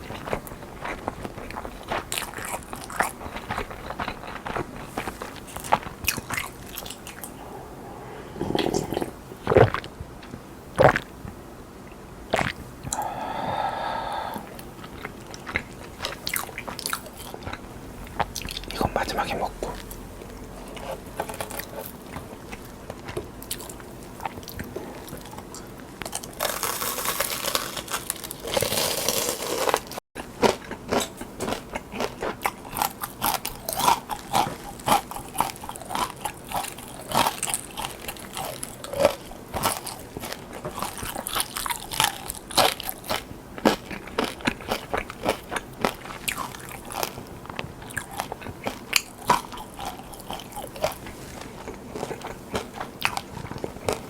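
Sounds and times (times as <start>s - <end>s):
crunchy food chewing: 0.0s - 54.0s
hiss-like noise: 12.9s - 14.6s.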